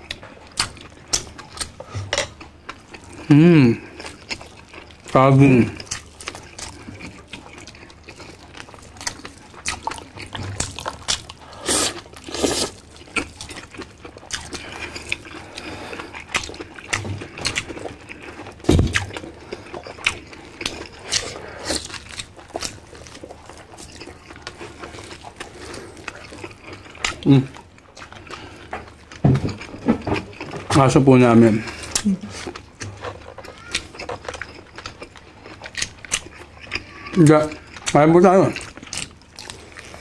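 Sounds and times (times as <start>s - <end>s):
wet chewing and lip-smacking: 0.0s - 40.0s
dull thump: 18.7s - 19.0s.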